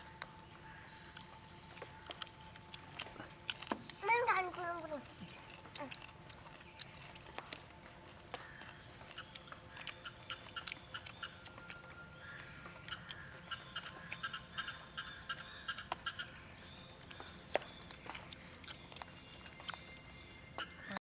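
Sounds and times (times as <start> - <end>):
rapid bird calls: 8.0 - 19.4.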